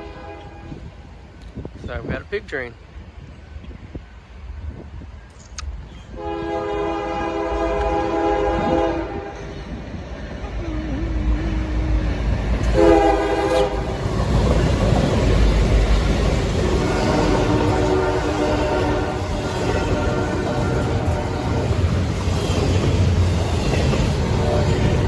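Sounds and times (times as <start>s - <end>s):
train air horn blasts: 0.0s - 1.0s, 6.1s - 14.1s, 16.6s - 22.0s, 24.0s - 25.0s
locomotive engines rumbling: 0.0s - 25.0s
rail noise: 0.0s - 25.0s.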